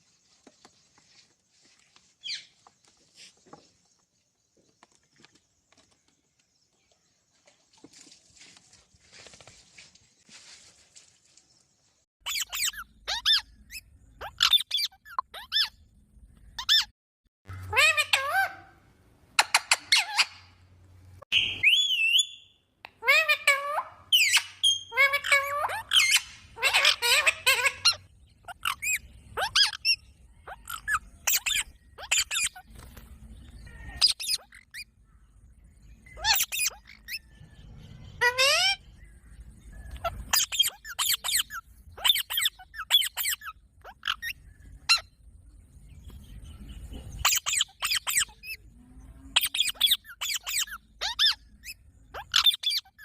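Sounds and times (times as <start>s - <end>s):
parrot chirping and squawking: 12.2s - 15.8s, 16.6s - 16.9s, 17.5s - 18.8s, 19.4s - 20.6s, 21.3s - 22.4s, 23.0s - 32.7s, 34.0s - 34.8s, 36.1s - 37.2s, 38.2s - 38.9s, 39.9s - 45.1s, 47.2s - 48.6s, 49.3s - 53.0s
parrot screeching: 17.6s - 18.7s, 23.0s - 29.8s, 36.2s - 37.1s, 38.2s - 38.8s, 47.2s - 48.6s, 49.4s - 53.0s.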